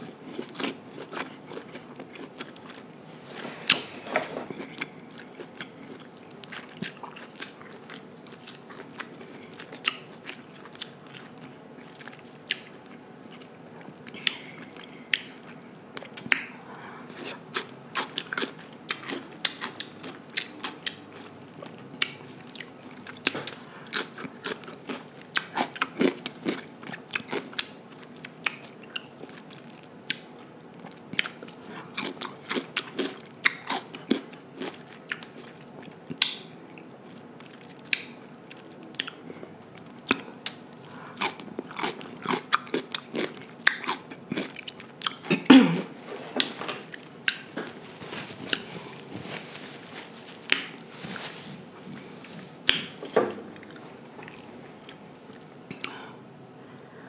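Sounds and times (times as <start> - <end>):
crunching cucumber slices: 46.4 - 55.9.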